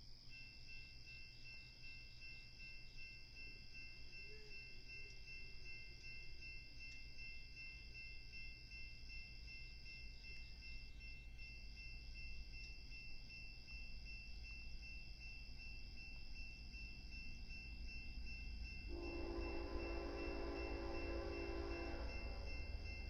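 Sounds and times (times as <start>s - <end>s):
insect chirring: 0.0s - 23.0s
high ringing tones: 0.3s - 23.0s
train horn: 18.9s - 23.0s.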